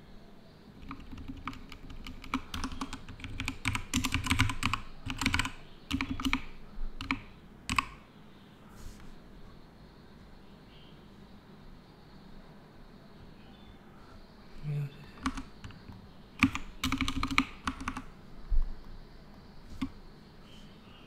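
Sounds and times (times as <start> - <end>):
computer keyboard typing: 0.8 - 8.0, 15.2 - 18.1, 19.7 - 20.0.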